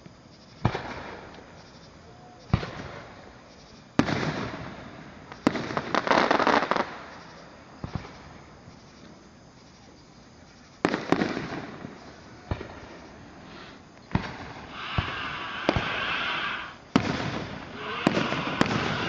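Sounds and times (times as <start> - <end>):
firework bangs: 0.6 - 1.4, 2.5 - 3.2, 4.0 - 7.2, 7.8 - 8.4, 10.8 - 19.0
firework hiss: 2.4 - 8.4, 10.8 - 19.0.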